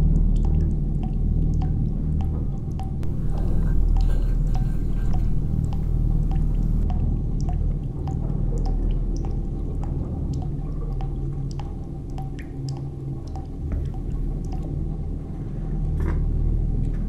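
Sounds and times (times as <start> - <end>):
low steady drone: 2.2 - 7.5.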